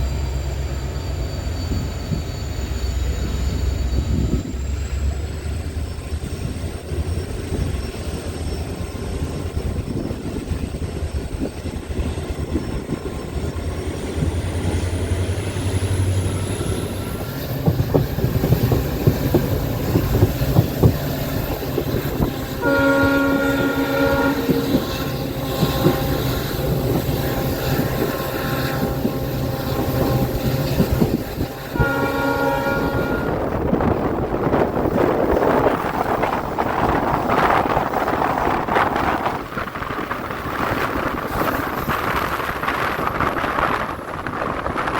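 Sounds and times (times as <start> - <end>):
train wheels clattering over rail joints: 4.0 - 32.1
locomotive multi-tone horn: 22.1 - 33.8.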